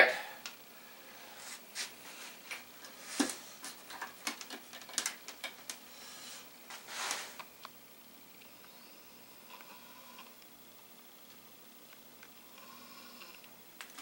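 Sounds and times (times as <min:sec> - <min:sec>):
small hard parts clicking: 0:03.9 - 0:05.8.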